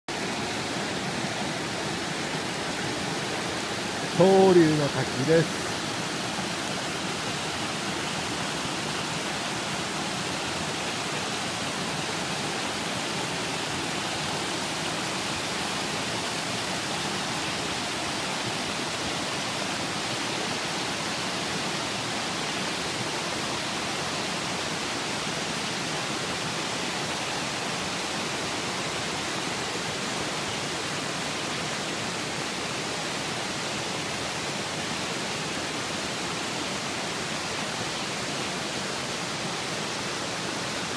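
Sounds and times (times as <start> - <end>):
waterfall rushing: 0.1 - 40.9.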